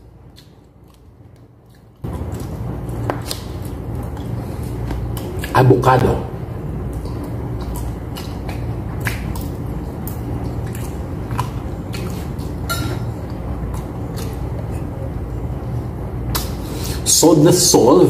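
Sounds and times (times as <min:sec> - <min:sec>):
low hum: 0:00.0 - 0:18.0
wet chewing: 0:00.2 - 0:05.6, 0:06.8 - 0:15.2
lip smacks: 0:00.3 - 0:05.6, 0:06.9 - 0:12.6, 0:13.2 - 0:14.8, 0:16.3 - 0:16.6.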